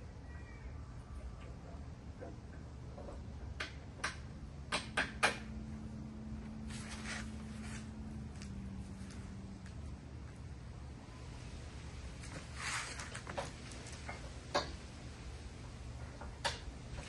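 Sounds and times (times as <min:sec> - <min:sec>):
tools clicking and knocking: 0:02.2 - 0:05.5
soft scraping rustle: 0:06.5 - 0:09.9, 0:11.3 - 0:14.3.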